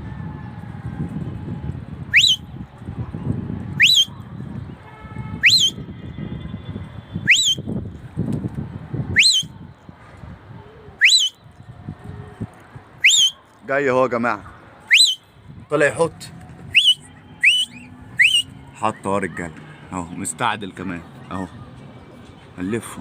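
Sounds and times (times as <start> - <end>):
person whistling: 2.2 - 2.4, 7.3 - 7.6, 11.0 - 11.4, 13.0 - 13.4, 14.9 - 15.2, 16.8 - 18.5.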